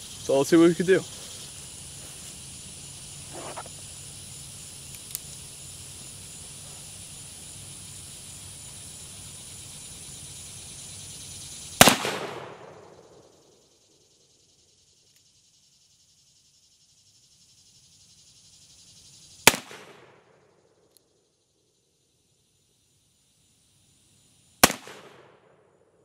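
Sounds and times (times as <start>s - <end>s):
revolver gunshot: 11.8s - 12.8s, 19.5s - 20.2s, 24.6s - 25.4s.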